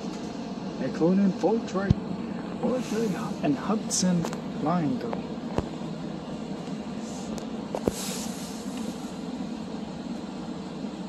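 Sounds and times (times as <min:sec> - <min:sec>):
commuter trains rumbling: 0:00.0 - 0:11.0
short hiss: 0:07.1 - 0:09.1.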